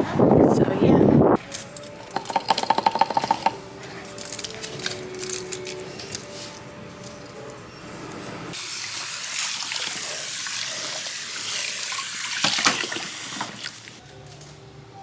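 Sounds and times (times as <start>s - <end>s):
water running from a tap: 8.6s - 14.0s.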